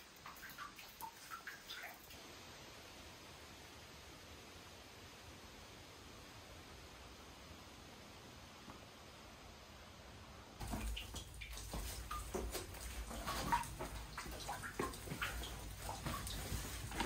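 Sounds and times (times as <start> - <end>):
water dripping in a cave: 0.0 - 2.2, 10.6 - 17.0
faint steady hiss: 0.0 - 17.0.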